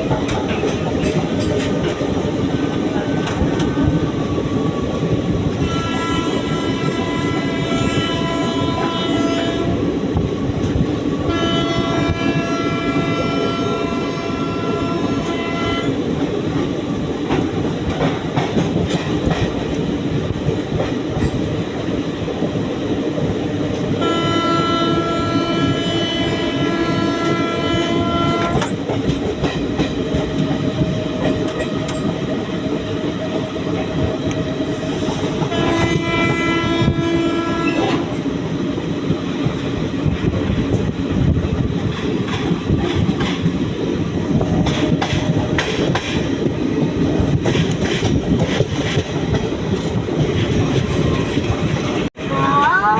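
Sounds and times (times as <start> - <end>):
train wheels clickety-clack: 0.0 - 52.2
train horn blast: 5.6 - 9.8, 11.3 - 16.0, 24.0 - 28.8, 35.4 - 38.1.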